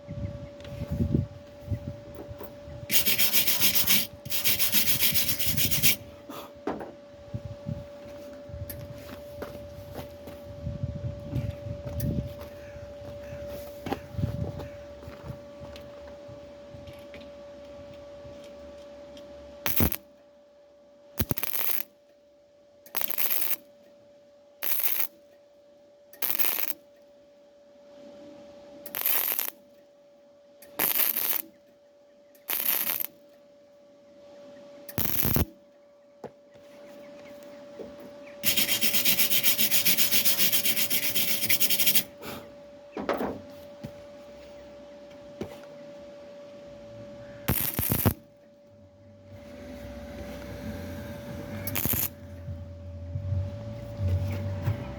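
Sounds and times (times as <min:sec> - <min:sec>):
steady hum: 0:00.0 - 0:54.9
welding crackle: 0:02.9 - 0:06.0, 0:19.7 - 0:20.0, 0:21.2 - 0:21.9, 0:22.9 - 0:23.6, 0:24.6 - 0:25.2, 0:26.2 - 0:26.8, 0:28.9 - 0:29.6, 0:30.8 - 0:31.5, 0:32.5 - 0:33.2, 0:35.0 - 0:35.5, 0:47.5 - 0:48.2, 0:51.7 - 0:52.2.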